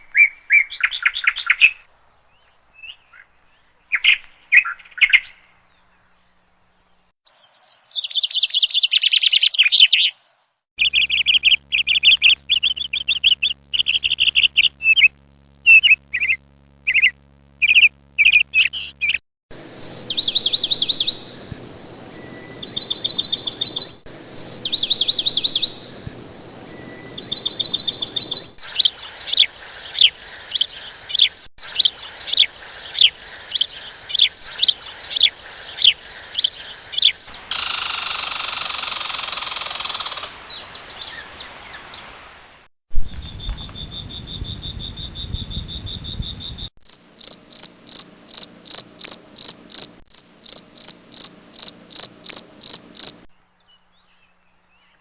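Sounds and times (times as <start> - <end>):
high bird trills: 10.8 - 21.4, 22.0 - 26.0, 26.6 - 41.8
quick chirps: 10.8 - 40.5, 46.9 - 53.3
high insect buzz: 10.8 - 41.0, 46.8 - 53.3
fast insect chirping: 10.8 - 41.1, 43.9 - 53.3
hiss: 28.6 - 40.6.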